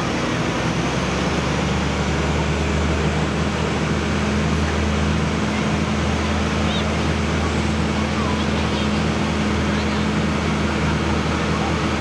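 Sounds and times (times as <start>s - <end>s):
tractor engine running hard: 0.0s - 12.0s.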